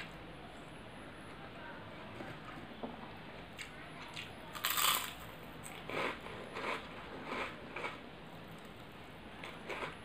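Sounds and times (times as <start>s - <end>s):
crisp food crunching: 3.6s - 8.0s, 9.4s - 10.0s
crunchy chewing: 3.6s - 8.0s, 9.4s - 10.0s.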